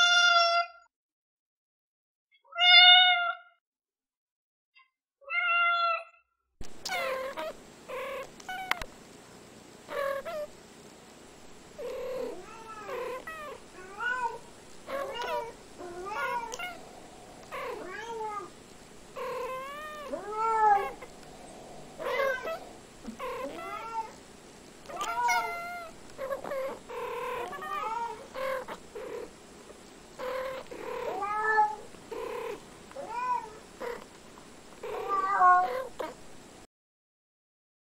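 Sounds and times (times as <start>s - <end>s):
cats meowing: 0.0s - 0.7s, 2.5s - 3.5s, 5.2s - 6.2s, 6.8s - 8.9s, 9.9s - 10.5s, 11.8s - 24.2s, 24.8s - 29.3s, 30.2s - 34.1s, 34.8s - 36.2s.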